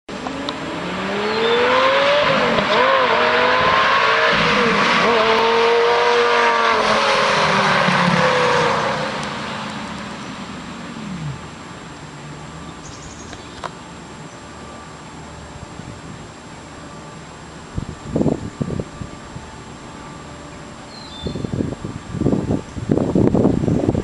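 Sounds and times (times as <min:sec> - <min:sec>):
sports car accelerating past: 0:00.1 - 0:11.5.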